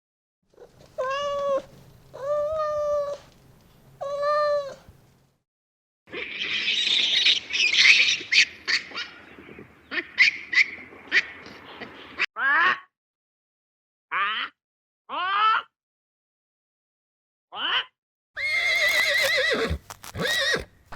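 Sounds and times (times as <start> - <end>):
cat meowing: 1.0 - 3.3, 4.0 - 4.9
animal screeching and chirping: 6.1 - 9.1, 18.4 - 20.7.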